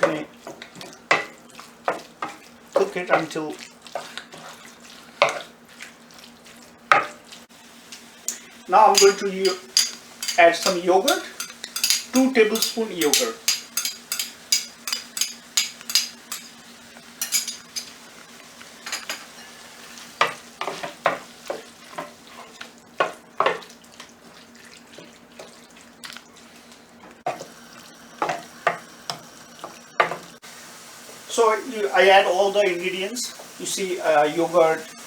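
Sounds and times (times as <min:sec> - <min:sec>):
light sizzle: 0:00.0 - 0:35.0
steady low hum: 0:07.8 - 0:19.1
spoon scraping a pan: 0:07.9 - 0:16.6, 0:17.2 - 0:18.0.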